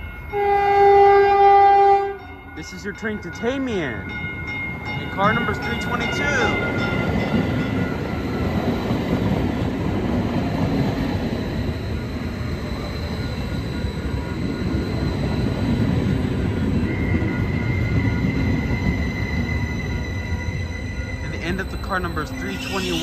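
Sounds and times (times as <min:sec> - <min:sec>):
train equipment low rumble: 0:00.0 - 0:23.0
thin high-pitched whining tones: 0:11.4 - 0:23.0.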